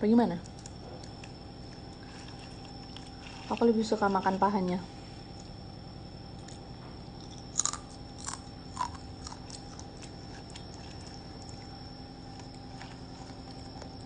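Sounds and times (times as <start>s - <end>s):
crunchy food being chewed: 0.4s - 4.0s, 6.3s - 14.0s.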